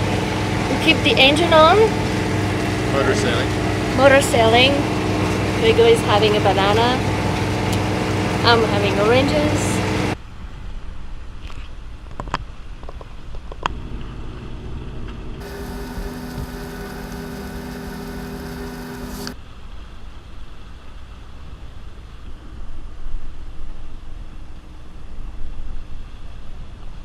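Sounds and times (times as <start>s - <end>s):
boat engine droning: 0.0s - 10.2s, 13.7s - 19.4s
steady hum: 0.0s - 10.2s, 13.7s - 19.4s
hiss: 15.4s - 19.4s.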